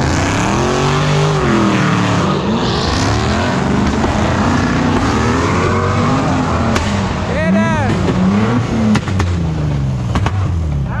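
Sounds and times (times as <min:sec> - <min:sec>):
car engine revving hard: 0:00.0 - 0:10.9
sharp crack: 0:06.6 - 0:09.5, 0:10.1 - 0:10.6.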